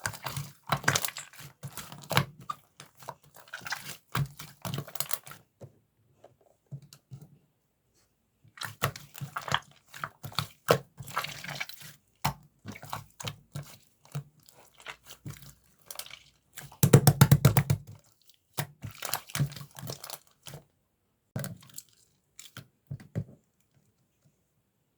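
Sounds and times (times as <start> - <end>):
slime popping: 16.8 - 17.9.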